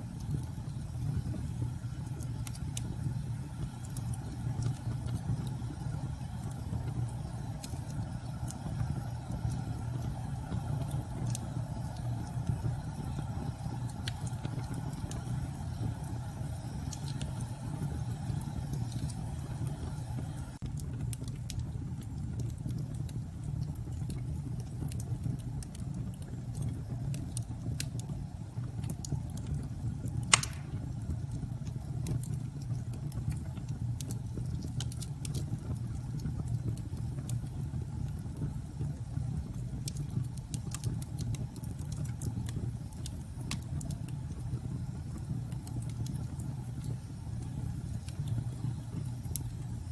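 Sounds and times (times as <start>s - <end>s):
fireplace crackling: 0.0s - 49.9s
loud crack of fire: 0.0s - 49.9s.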